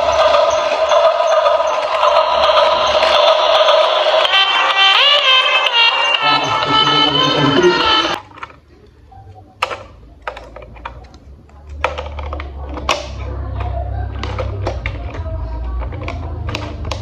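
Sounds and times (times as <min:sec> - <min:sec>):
background music: 0:03.6 - 0:08.2
plastic toy parts clicking: 0:09.6 - 0:17.0.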